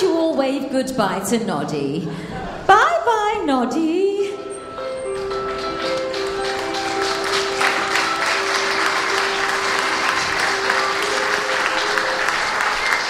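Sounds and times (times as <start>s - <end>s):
music with long held notes: 4.3s - 13.0s
audience applauding: 5.1s - 13.0s.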